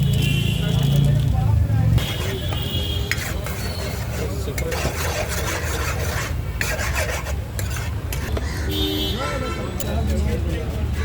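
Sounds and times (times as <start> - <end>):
spoon scraping a cooking pan: 2.0 - 8.5.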